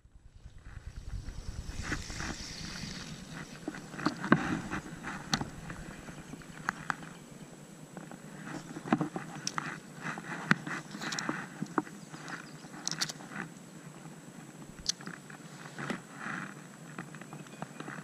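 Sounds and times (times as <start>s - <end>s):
wind rumbling on microphone: 0.0s - 13.3s.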